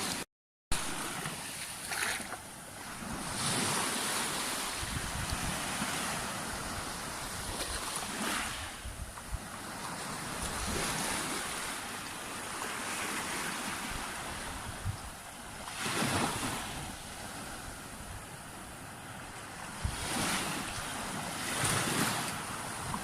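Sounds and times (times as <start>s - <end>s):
sea waves breaking on beach: 0.0s - 0.2s, 0.8s - 23.0s
wind buffeting microphone: 4.4s - 11.4s, 13.6s - 15.3s, 19.6s - 23.0s.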